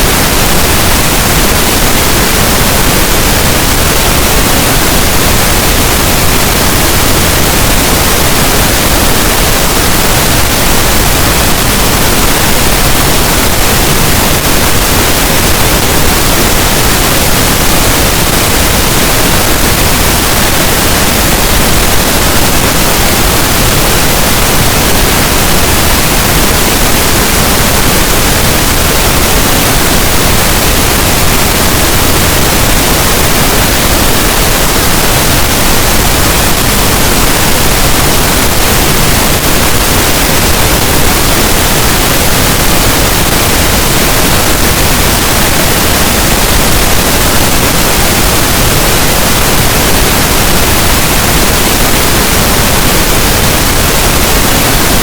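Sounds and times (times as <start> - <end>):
pink noise hiss: 0.0 - 55.0.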